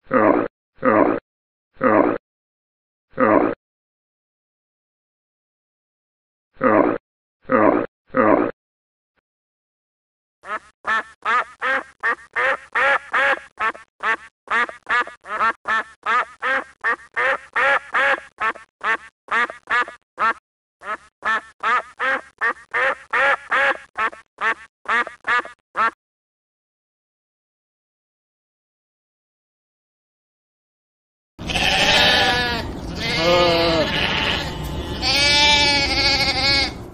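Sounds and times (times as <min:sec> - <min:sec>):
duck quacking: 0:10.4 - 0:26.0, 0:31.5 - 0:36.8.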